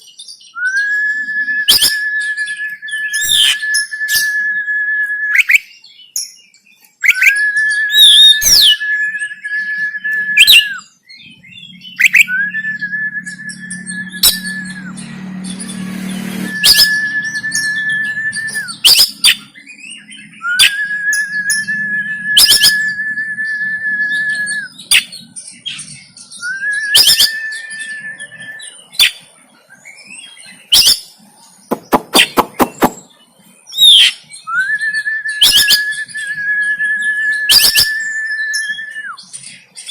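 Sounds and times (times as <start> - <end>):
bird whistling long notes: 0.2 - 6.0, 7.0 - 29.2, 29.8 - 39.8
low hum: 11.4 - 18.8
bird clicking calls: 31.7 - 33.1.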